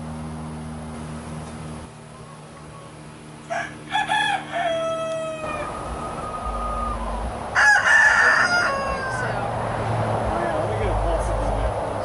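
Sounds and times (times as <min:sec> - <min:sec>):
rooster crowing: 0:02.1 - 0:09.8.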